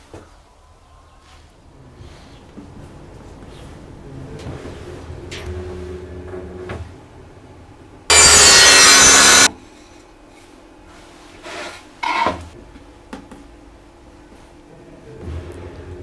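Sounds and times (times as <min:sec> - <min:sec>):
tool scraping wood: 0:08.1 - 0:09.5.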